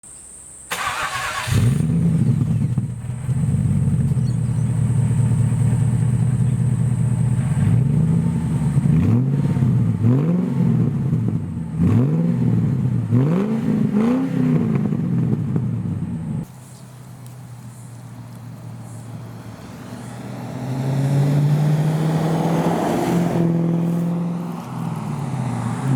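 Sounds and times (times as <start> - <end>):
engine starting and idling: 0.7 - 6.8
engine revving: 0.7 - 15.7, 19.0 - 25.9.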